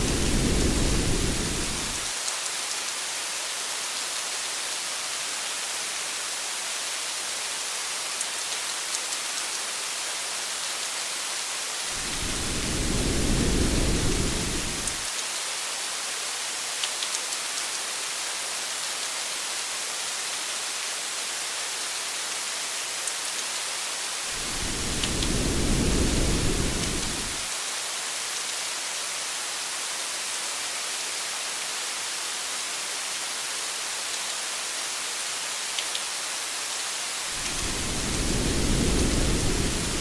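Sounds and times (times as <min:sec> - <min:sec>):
low rumble of thunder: 0:00.0 - 0:02.1, 0:12.0 - 0:15.0, 0:24.4 - 0:27.4, 0:37.4 - 0:40.0
steady rain hiss: 0:00.0 - 0:40.0.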